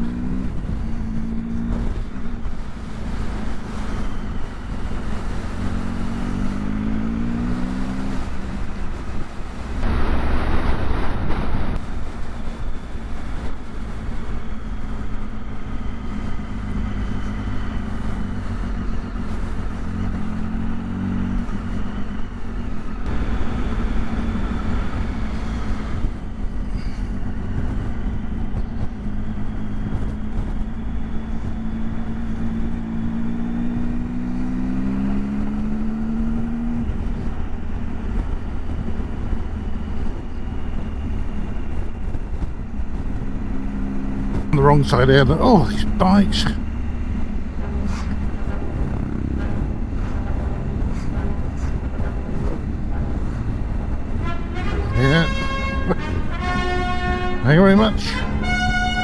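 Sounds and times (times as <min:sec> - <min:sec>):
motorcycle engine accelerating: 0:00.0 - 0:11.8
wind noise: 0:07.3 - 0:15.4
loud rush of noise: 0:09.6 - 0:12.1, 0:44.6 - 0:59.0.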